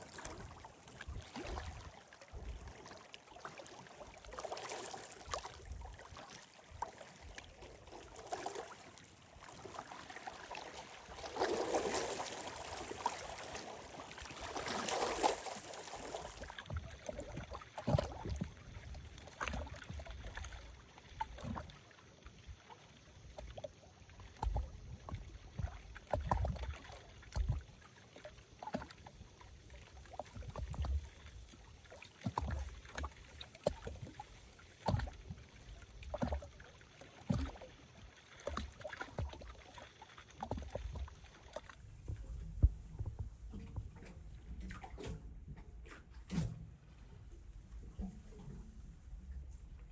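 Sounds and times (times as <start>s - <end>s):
waves lapping at shore: 0.0s - 19.8s.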